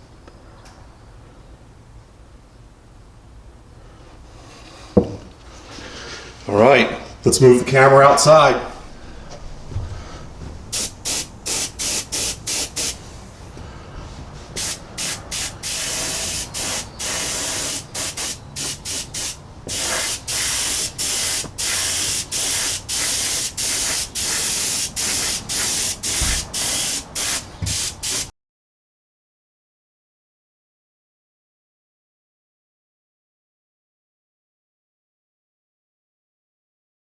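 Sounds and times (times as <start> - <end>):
airbrush spraying hiss: 10.7 - 13.1, 14.6 - 28.3.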